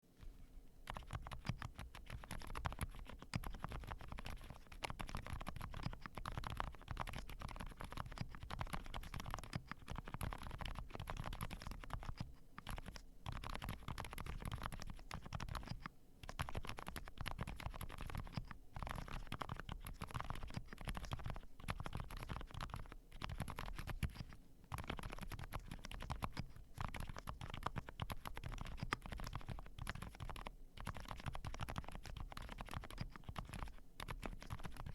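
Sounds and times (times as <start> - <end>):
muffled keyboard typing: 0.8 - 34.9.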